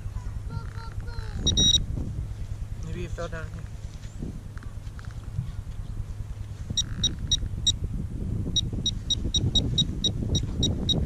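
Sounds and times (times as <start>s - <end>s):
low rumbling handling noise: 0.0s - 11.0s
metal detector beeping: 1.4s - 1.8s, 6.8s - 7.8s, 8.6s - 11.0s.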